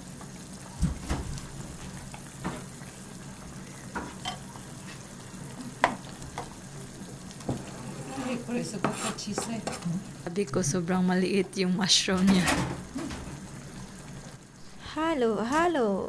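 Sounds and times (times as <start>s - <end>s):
hot pot hissing on stove: 0.0s - 11.6s, 12.2s - 15.1s
utensils clinking on pot: 4.0s - 4.7s, 7.4s - 10.1s, 11.4s - 13.5s.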